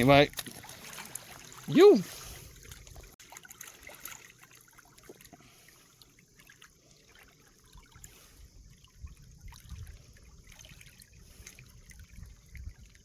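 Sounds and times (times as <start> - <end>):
shallow water lapping and trickling: 0.0 - 13.0
small water drips: 0.2 - 13.0.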